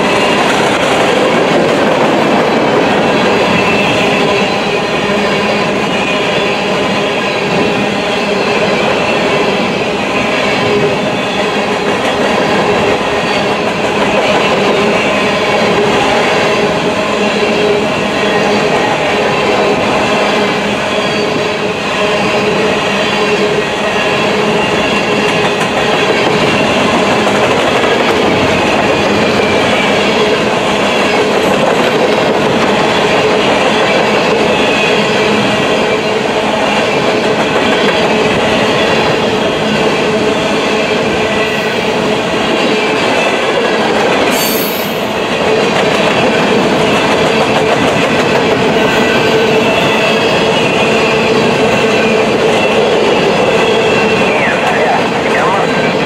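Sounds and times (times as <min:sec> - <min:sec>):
steel wheels on rail: 0:00.0 - 0:56.0
sharp high squeal: 0:44.3 - 0:45.3.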